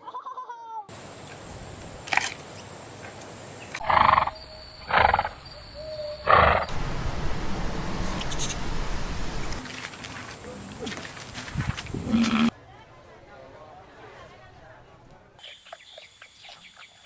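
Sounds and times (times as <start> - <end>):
wild animal calling: 3.8 - 6.8, 10.2 - 12.5
steady hiss: 6.7 - 12.5.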